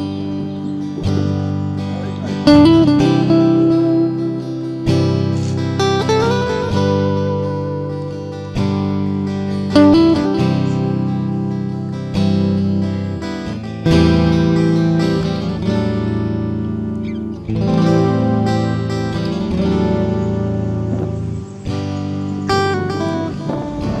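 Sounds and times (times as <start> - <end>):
acoustic guitar playing chords: 0.0 - 24.0.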